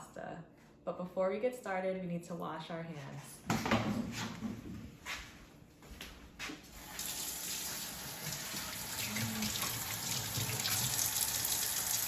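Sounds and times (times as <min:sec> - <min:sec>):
sink tap turned on: 0:06.8 - 0:12.0
water running into sink: 0:06.8 - 0:12.0.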